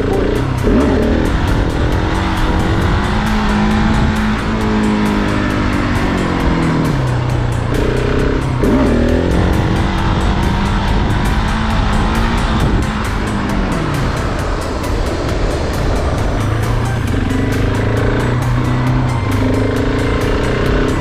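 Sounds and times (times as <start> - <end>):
motorcycle engine revving: 0.0 - 21.0
wind buffeting microphone: 0.0 - 21.0.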